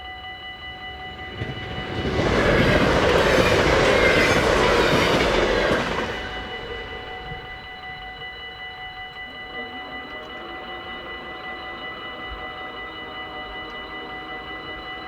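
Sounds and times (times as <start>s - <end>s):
train wheels rushing on track: 0.0s - 9.4s
crossing warning bells ringing: 0.0s - 15.0s.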